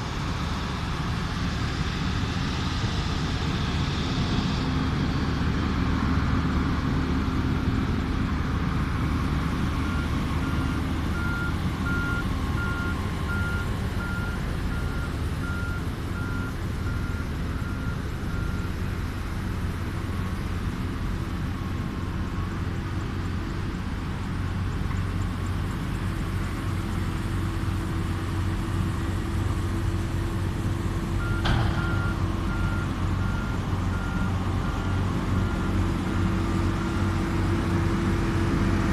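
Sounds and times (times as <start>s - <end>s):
heavy vehicle engine rumble: 0.0s - 38.9s
reversing alarm beeping: 9.8s - 18.8s, 31.2s - 37.1s.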